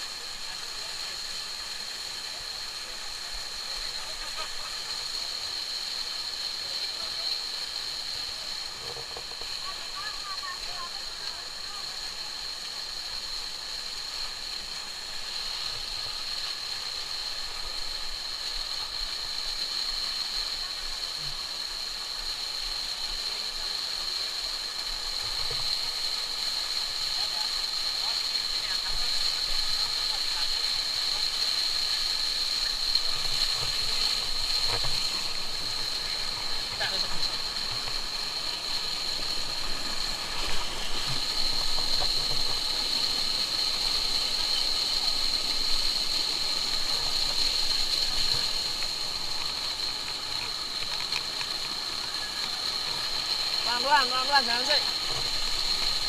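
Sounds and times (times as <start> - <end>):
rushing stream water: 0.0 - 56.0.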